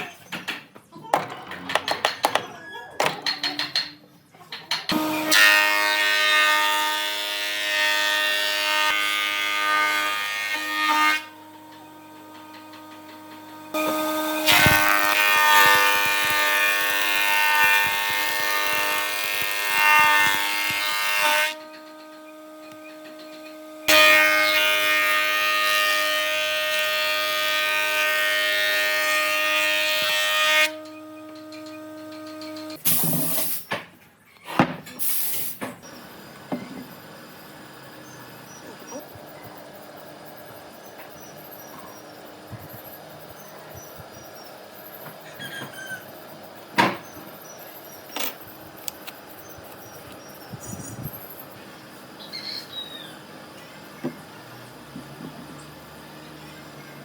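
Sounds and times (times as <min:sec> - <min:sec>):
electric power tool whining: 0:04.9 - 0:06.2, 0:07.2 - 0:32.8.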